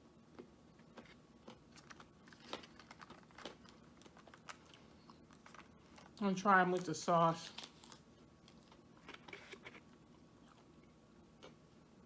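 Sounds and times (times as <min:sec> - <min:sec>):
person eating crunchy food: 0:00.3 - 0:06.2, 0:07.4 - 0:11.6
packaging crinkling: 0:01.7 - 0:06.2.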